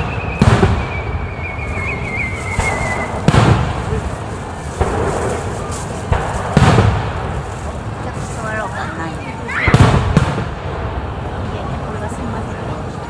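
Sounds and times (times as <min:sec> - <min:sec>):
thin wavering whistle: 0:00.0 - 0:03.3
fireworks booming: 0:00.0 - 0:13.0.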